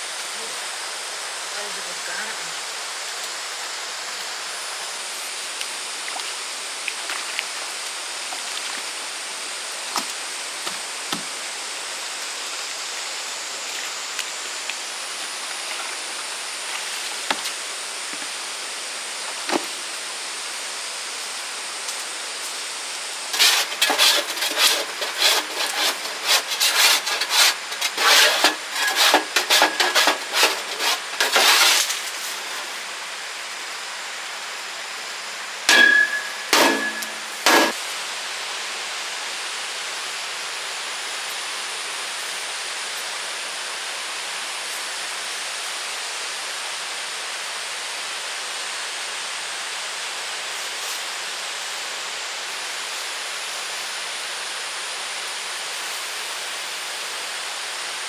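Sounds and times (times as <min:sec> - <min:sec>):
rapid loud scraping: 0:23.3 - 0:32.9, 0:35.7 - 0:37.8.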